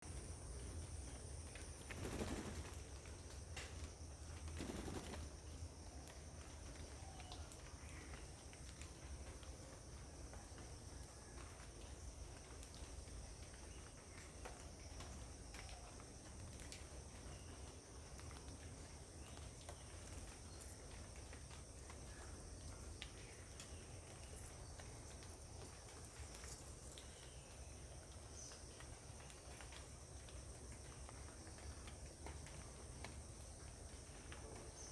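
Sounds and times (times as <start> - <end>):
insect drone: 0.0 - 7.1
faint bird sounds: 0.0 - 34.9.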